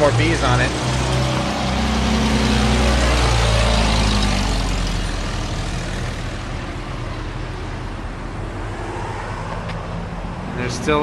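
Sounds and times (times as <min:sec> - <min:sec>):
car engine running: 0:00.0 - 0:06.8.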